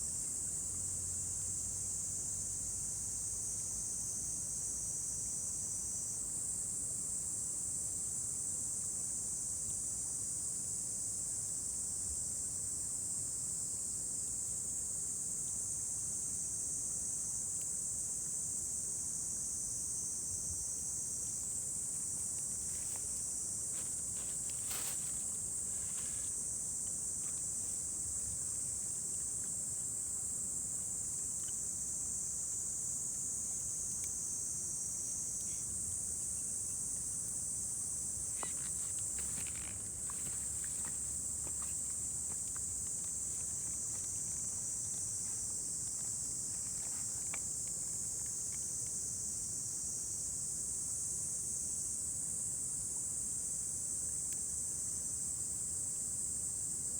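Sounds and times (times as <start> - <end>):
insects chirring: 16.7 - 56.6.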